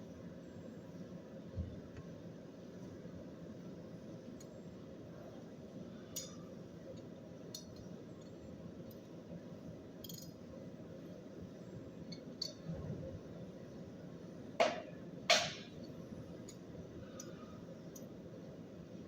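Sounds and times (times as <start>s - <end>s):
low machine-shop hum: 0.0s - 19.0s.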